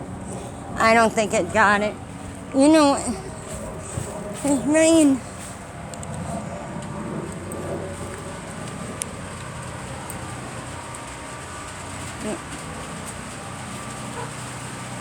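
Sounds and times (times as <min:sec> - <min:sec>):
outdoor background hum: 0:00.0 - 0:15.0
light rain ticks: 0:05.2 - 0:15.0.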